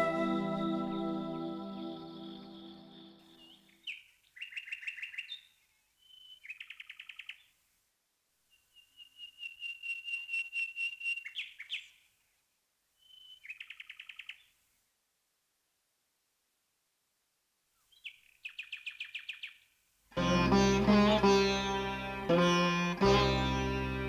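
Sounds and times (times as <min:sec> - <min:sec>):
background music: 0:00.0 - 0:03.2, 0:20.2 - 0:24.0
songbird whistling and trilling: 0:08.7 - 0:11.8, 0:13.0 - 0:13.8.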